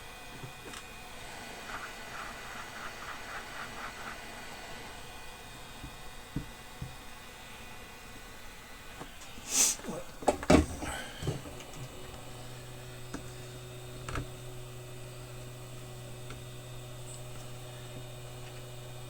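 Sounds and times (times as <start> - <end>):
steady low hum: 0.0 - 19.0
brief hiss: 9.2 - 10.0.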